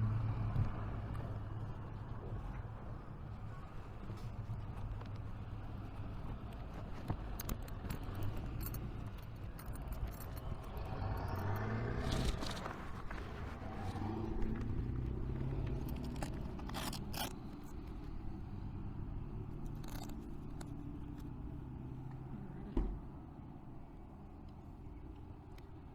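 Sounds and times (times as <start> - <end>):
scraping: 11.4 - 18.2.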